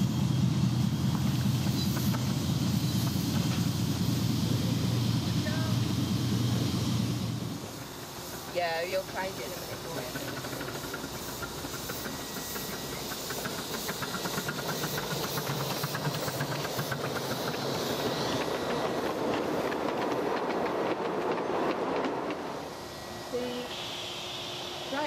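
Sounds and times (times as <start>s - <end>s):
miniature train running: 0.0s - 22.4s
wheels clicking over rail joints: 8.4s - 22.5s.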